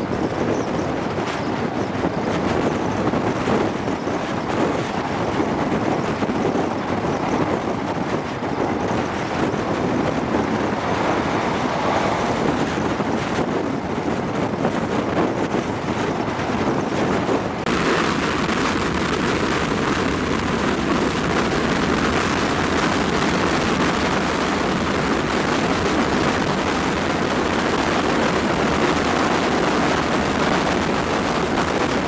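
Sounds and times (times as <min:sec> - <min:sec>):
train running on track: 0:00.0 - 0:32.0
wind rushing over microphone: 0:00.0 - 0:32.0.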